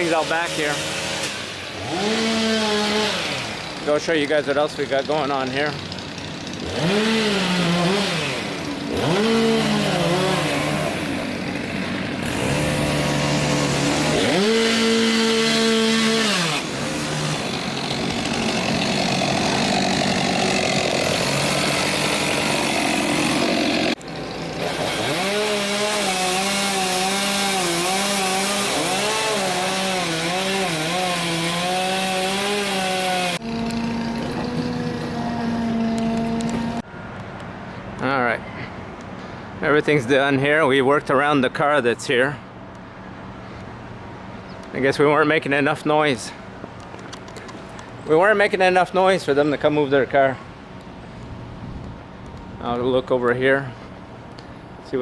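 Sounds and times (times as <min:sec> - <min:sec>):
chainsaw revving and idling: 0:00.0 - 0:36.9.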